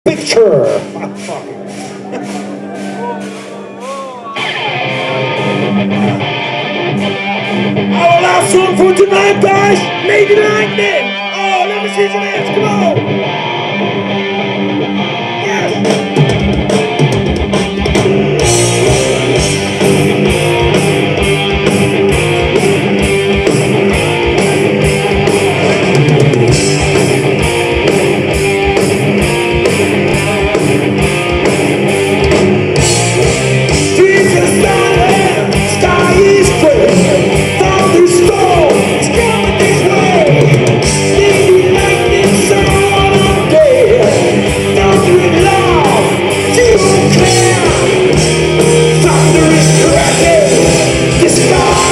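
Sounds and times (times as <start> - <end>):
steady drum beat: 0.0 - 13.0, 15.5 - 51.9
distorted electric guitars: 0.0 - 51.9
person singing: 1.1 - 5.8, 33.9 - 51.9.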